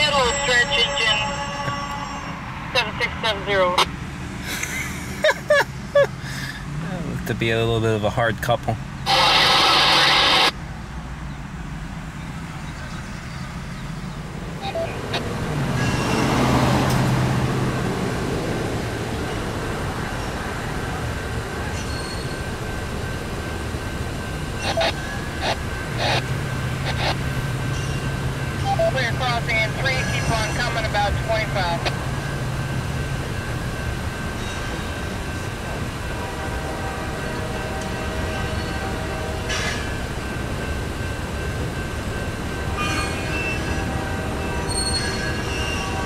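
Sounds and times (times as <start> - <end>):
freight train low rumble: 0.0 - 46.0
wheel squeals: 15.8 - 17.0, 21.7 - 22.6, 44.6 - 46.0.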